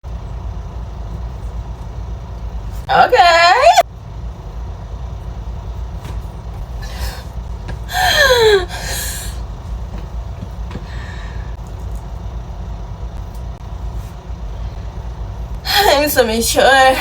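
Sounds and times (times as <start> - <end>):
low hum: 0.0 - 17.0
woman's falling vocal sound: 7.9 - 9.4
breathy exhale: 10.8 - 11.6.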